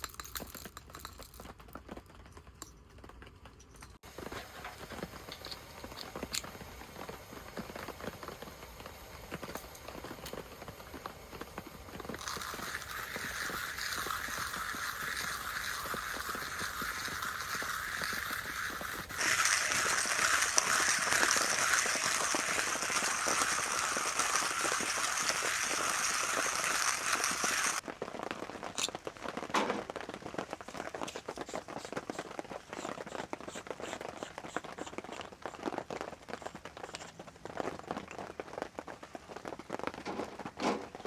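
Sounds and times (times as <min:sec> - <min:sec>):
campfire crackling: 0:04.0 - 0:40.1
steady hiss: 0:04.1 - 0:27.8.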